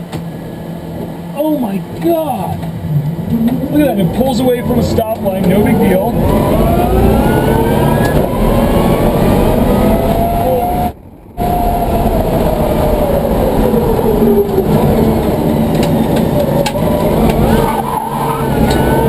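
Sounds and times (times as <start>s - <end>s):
road and tyre noise: 0.0s - 19.0s
electric motor whine: 3.3s - 19.0s.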